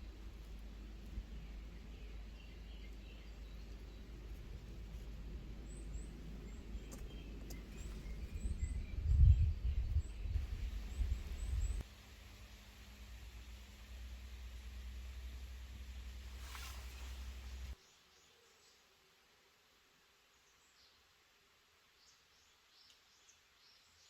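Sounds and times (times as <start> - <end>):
low rumble: 0.0 - 11.8
small birds chirping: 0.0 - 11.9
low background noise: 0.0 - 24.0.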